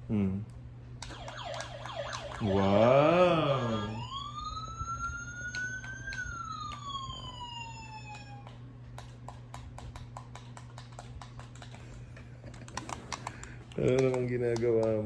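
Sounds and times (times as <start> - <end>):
electronic toy siren: 1.0 - 8.5.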